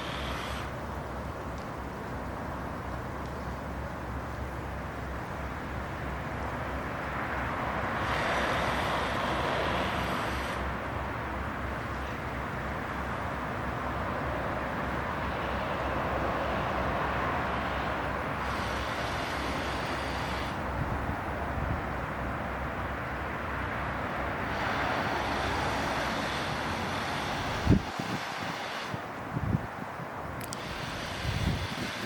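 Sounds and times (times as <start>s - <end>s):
traffic rumble: 0.0s - 32.0s
vehicle passing: 5.6s - 29.8s.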